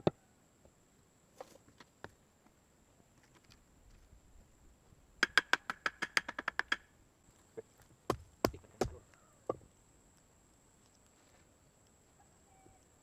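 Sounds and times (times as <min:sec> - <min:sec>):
hand tool knocking on wood: 0:08.1 - 0:09.0.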